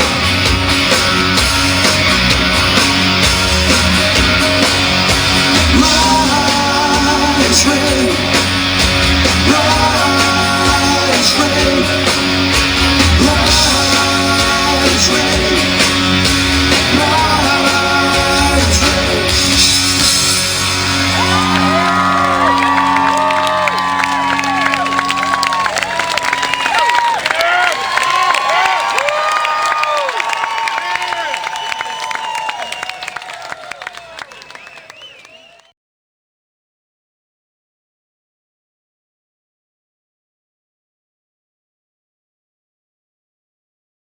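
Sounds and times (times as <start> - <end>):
live rock band playing: 0.0 - 27.3
singer holding wordless notes: 5.5 - 8.5, 9.2 - 19.8
crowd whooping and cheering: 20.6 - 35.7.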